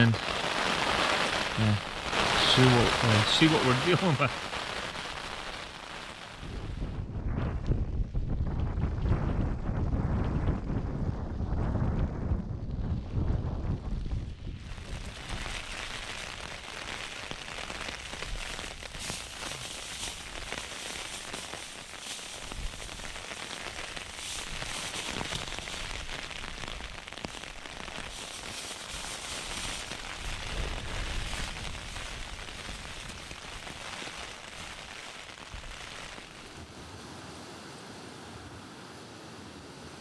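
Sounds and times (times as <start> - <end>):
heavy rain: 0.0 - 7.1, 8.2 - 40.0.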